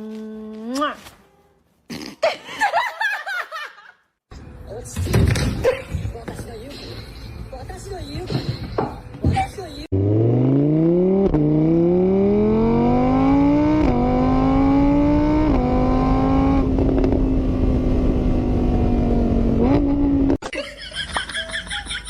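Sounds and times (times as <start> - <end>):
car engine accelerating: 9.9 - 20.4.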